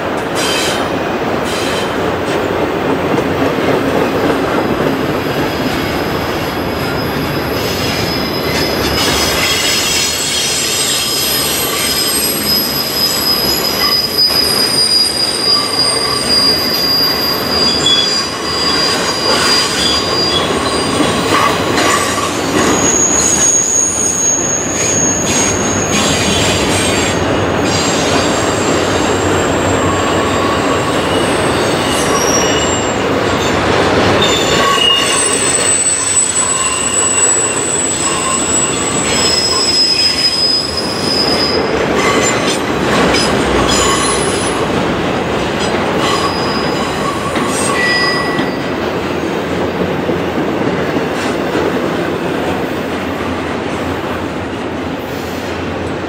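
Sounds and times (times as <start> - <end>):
train wheels rumbling on rails: 0.0 - 56.0
high wheel squeals: 6.5 - 33.1, 34.2 - 44.8, 46.0 - 48.7.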